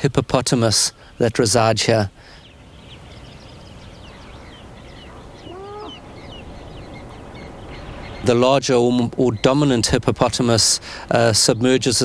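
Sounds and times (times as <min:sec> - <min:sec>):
birds chirping: 0:00.0 - 0:12.0
steady background hiss: 0:00.0 - 0:12.0
low rising and falling bird call: 0:02.4 - 0:08.3.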